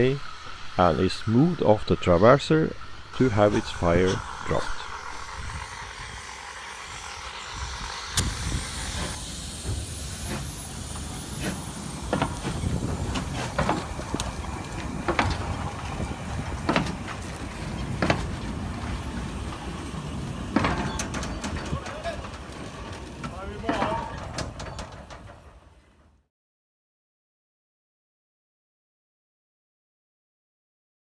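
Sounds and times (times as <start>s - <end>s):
steam locomotive hissing: 0.0s - 26.2s
sharp metallic clanks: 5.6s - 25.6s.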